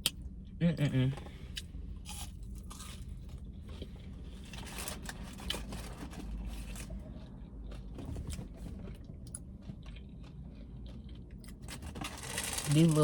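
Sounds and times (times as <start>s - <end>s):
food crunching: 1.6s - 3.9s, 9.2s - 13.0s
paper packaging rustling: 11.7s - 13.0s.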